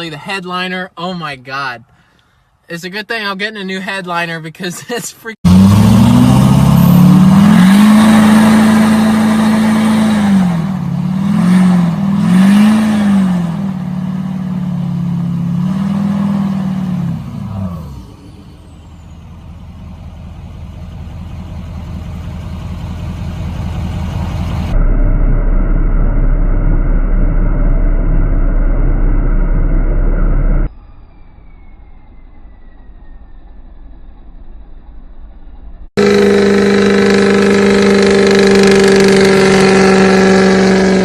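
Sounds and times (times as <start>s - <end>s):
truck engine revving: 5.4s - 30.7s, 36.0s - 41.0s.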